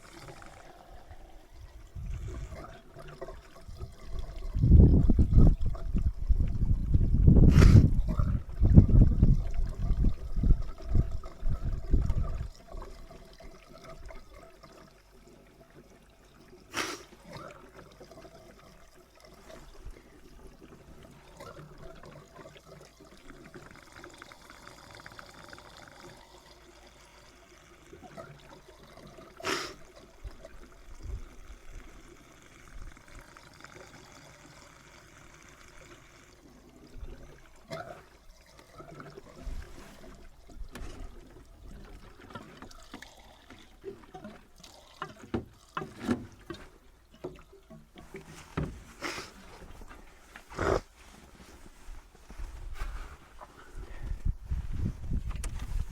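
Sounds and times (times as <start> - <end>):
fuel pouring through a hose: 0.0 - 55.9.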